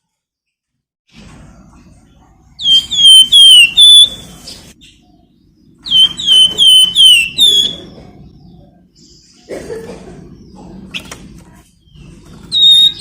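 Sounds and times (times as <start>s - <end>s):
songbird whistling descending notes: 2.6s - 4.2s, 5.8s - 8.0s, 12.5s - 13.0s.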